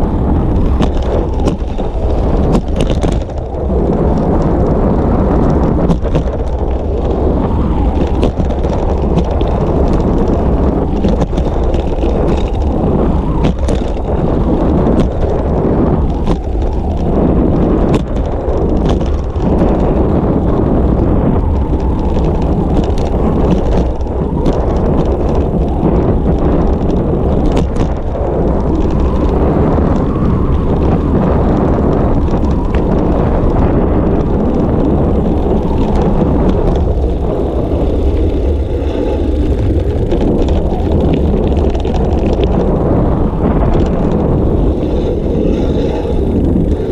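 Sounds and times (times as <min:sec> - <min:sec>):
bicycle clicks and rattles: 0:00.0 - 0:46.9
wind buffeting microphone: 0:00.0 - 0:46.9.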